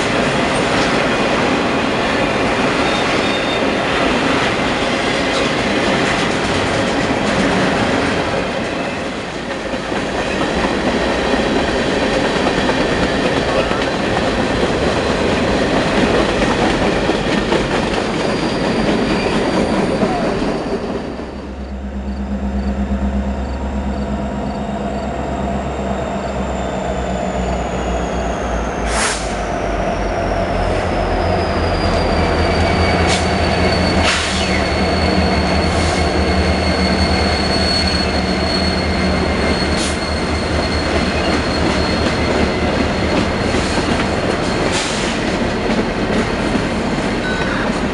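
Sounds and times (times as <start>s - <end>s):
train wheels rumbling on rail: 0.0s - 47.9s
high wheel squeal: 2.8s - 3.7s, 18.0s - 45.3s
low engine drone: 21.4s - 27.9s.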